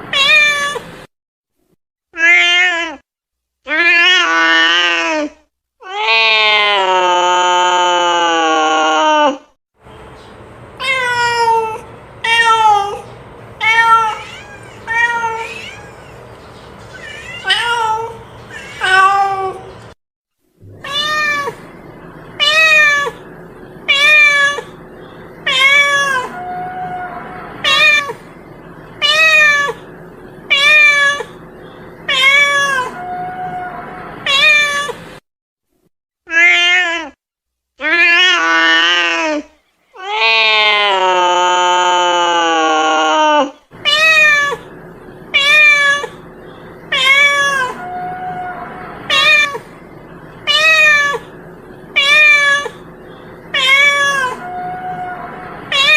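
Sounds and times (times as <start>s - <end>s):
cat meowing: 0.1s - 0.9s, 3.7s - 9.5s, 13.6s - 16.2s, 16.9s - 19.7s, 20.7s - 21.6s, 22.4s - 23.2s, 23.9s - 24.7s, 25.4s - 28.2s, 29.0s - 29.8s, 30.5s - 31.4s, 32.1s - 35.0s, 40.0s - 44.7s, 45.3s - 46.2s, 46.9s - 49.7s, 50.4s - 51.3s, 52.0s - 52.9s, 53.5s - 55.9s.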